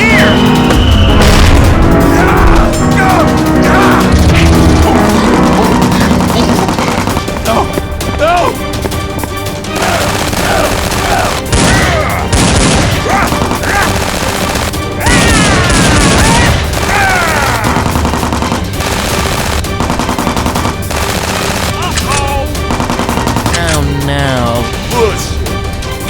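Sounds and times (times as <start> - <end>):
action music: 0.0 - 26.0
gunfire bursts: 4.2 - 7.7, 9.7 - 23.8.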